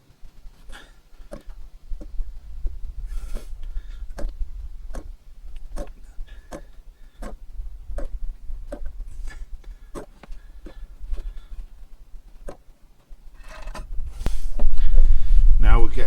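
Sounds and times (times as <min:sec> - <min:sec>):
steady low rumble: 0:00.0 - 0:12.5, 0:13.1 - 0:16.0
oil bottle clicking and glugging: 0:03.3 - 0:11.4.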